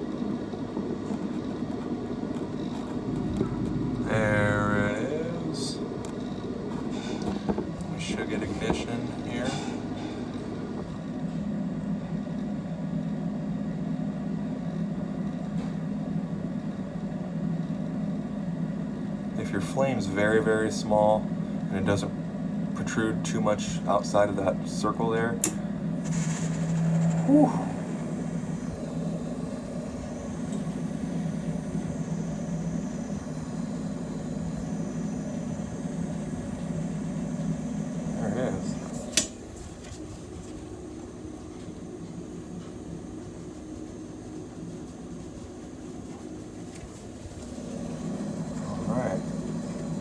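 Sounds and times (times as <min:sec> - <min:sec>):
gas furnace humming: 0:00.0 - 0:50.0
draft inducer fan: 0:23.0 - 0:50.0.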